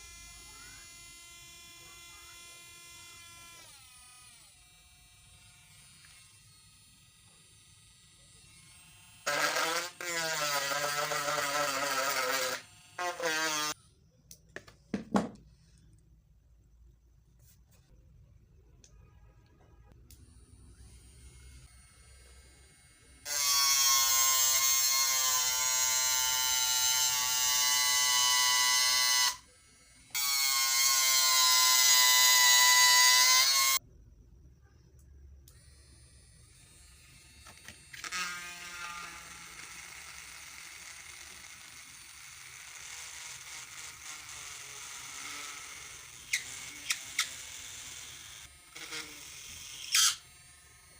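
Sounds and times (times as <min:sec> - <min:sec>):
mini grinder motor whining: 0:00.0 - 0:13.8, 0:35.5 - 0:50.9.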